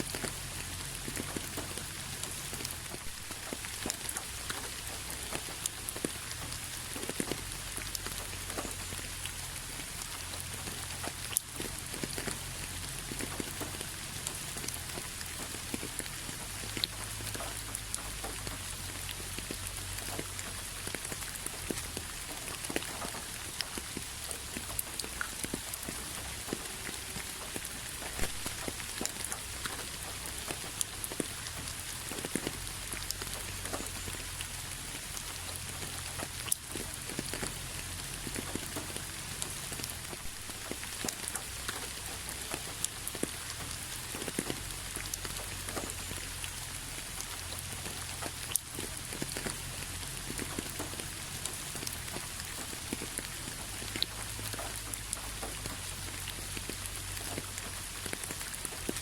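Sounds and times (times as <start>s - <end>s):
rain on a hard surface: 0.0s - 59.0s.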